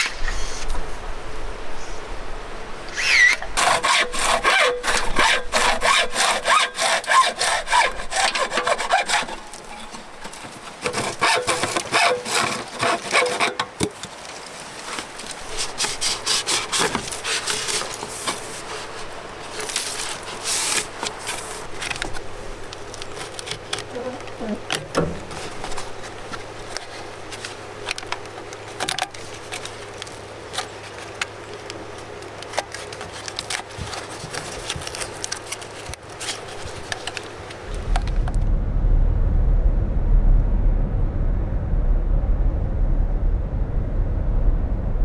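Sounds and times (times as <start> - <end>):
hand saw cutting: 3.0 - 14.0, 15.6 - 18.4.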